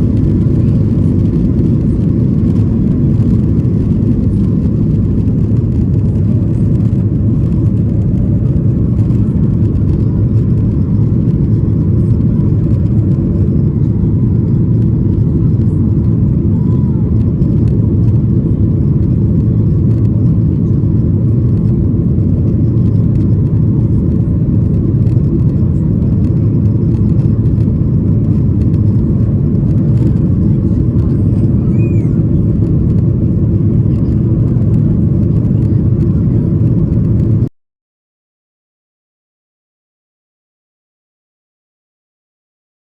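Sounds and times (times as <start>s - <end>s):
jet engines rumbling in cabin: 0.0s - 37.5s.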